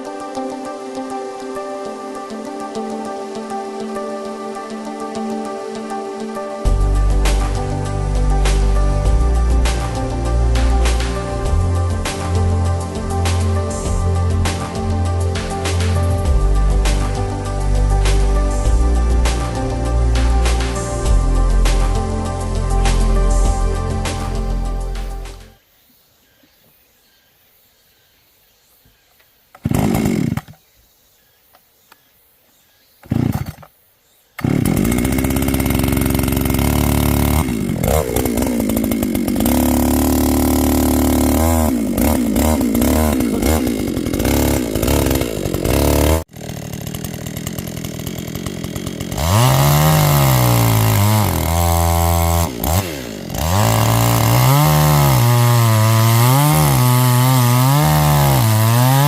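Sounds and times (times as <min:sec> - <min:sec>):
chainsaw engine revving: 0:29.6 - 0:30.6, 0:33.0 - 0:33.7, 0:34.4 - 0:59.0.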